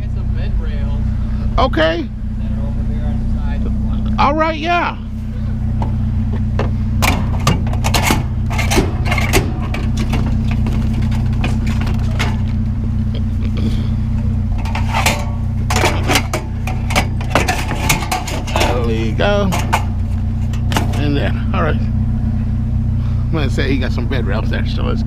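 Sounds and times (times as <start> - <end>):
truck engine idling: 0.0 - 25.0
scrap metal clanking: 5.2 - 22.0.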